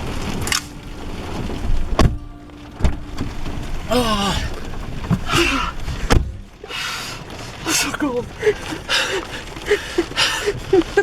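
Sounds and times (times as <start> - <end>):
rain and sleet on a truck: 0.0 - 11.0
sharp knocks: 5.0 - 6.4.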